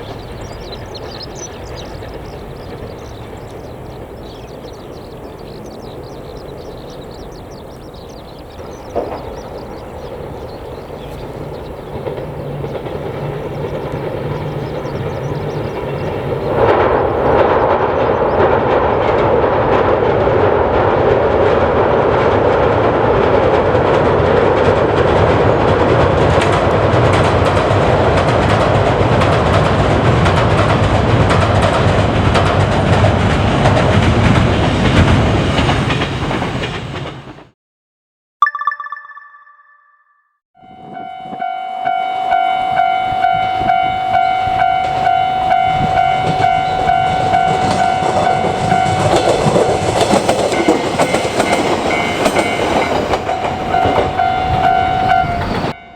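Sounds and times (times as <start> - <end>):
train wheels clattering over rail joints: 0.0 - 37.5, 44.8 - 55.7.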